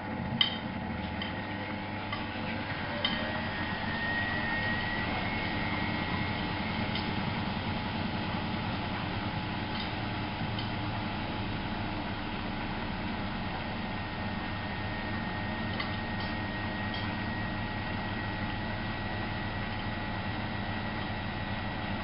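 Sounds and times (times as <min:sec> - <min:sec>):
washing machine humming: 0:00.0 - 0:22.0.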